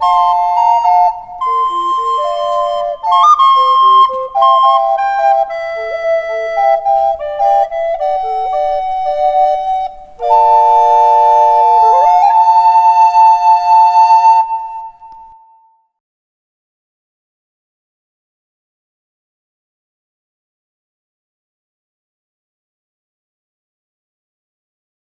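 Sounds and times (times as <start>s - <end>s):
recorders playing a melody: 0.0s - 15.4s.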